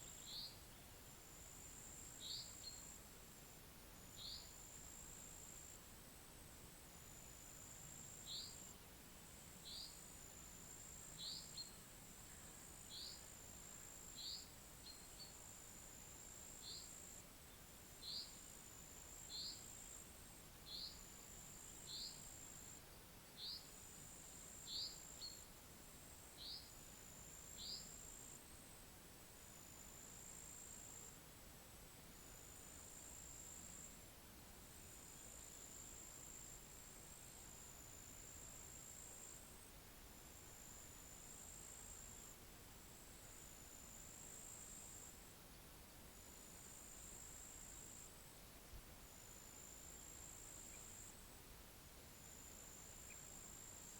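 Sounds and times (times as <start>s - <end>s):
high insect trill: 1.5s - 3.0s, 7.1s - 8.8s, 12.5s - 17.2s, 18.0s - 20.1s, 20.7s - 22.8s, 23.4s - 25.5s, 26.4s - 28.4s.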